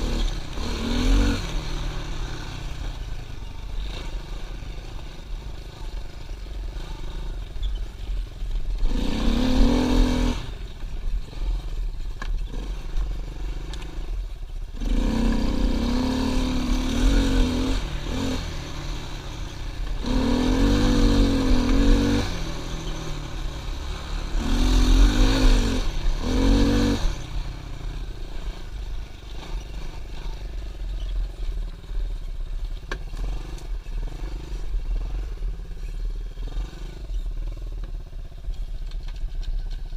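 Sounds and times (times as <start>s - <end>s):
motorbike engine revving: 0.0s - 31.9s.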